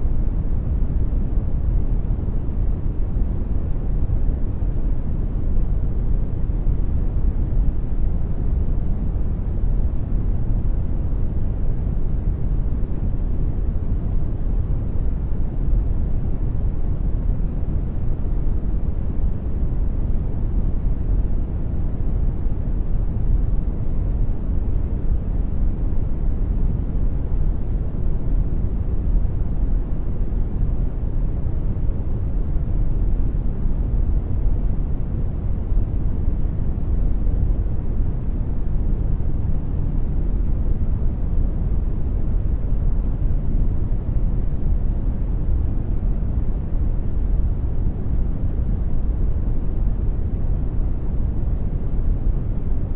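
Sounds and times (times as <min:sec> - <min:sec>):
brown noise rumble: 0:00.0 - 0:52.9.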